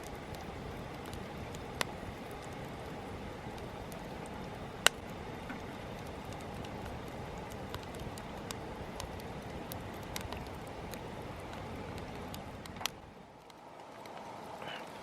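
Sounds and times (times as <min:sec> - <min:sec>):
campfire hissing: 0:00.0 - 0:15.0
fire crackling and popping: 0:00.0 - 0:15.0.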